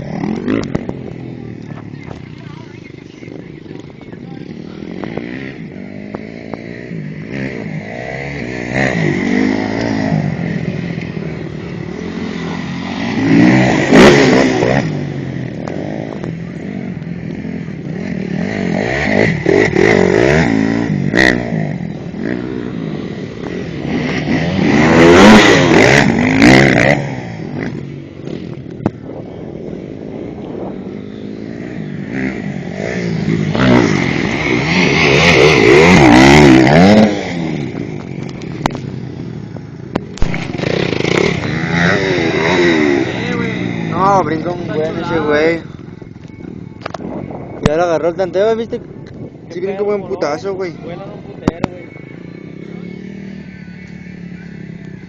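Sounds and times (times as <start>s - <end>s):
dirt bike engine revving: 0.0s - 48.8s.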